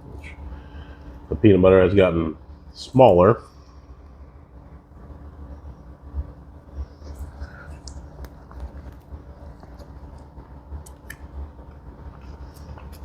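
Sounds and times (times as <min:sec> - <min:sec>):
steady low rumble: 0:00.0 - 0:13.0
person chewing: 0:07.1 - 0:13.0.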